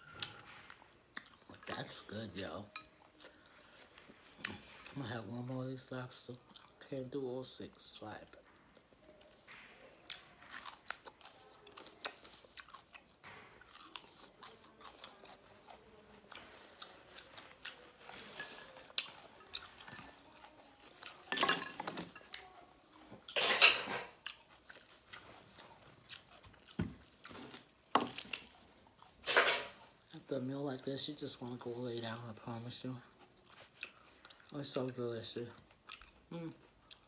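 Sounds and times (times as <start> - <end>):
person chewing lobster: 0.0 - 1.8, 6.3 - 6.8, 8.7 - 21.3, 24.0 - 29.2, 33.0 - 34.8, 35.6 - 37.0.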